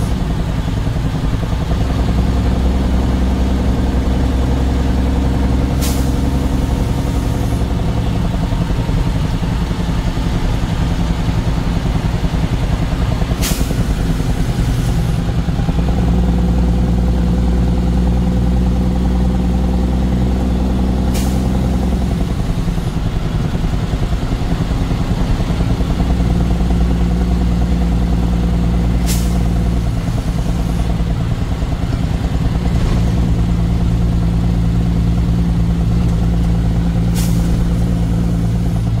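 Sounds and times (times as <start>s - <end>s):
truck engine running: 0.0s - 39.0s.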